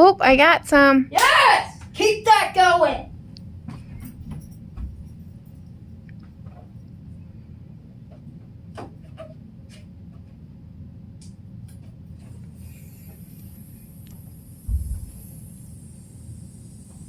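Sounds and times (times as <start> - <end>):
high hiss: 12.2 - 17.0.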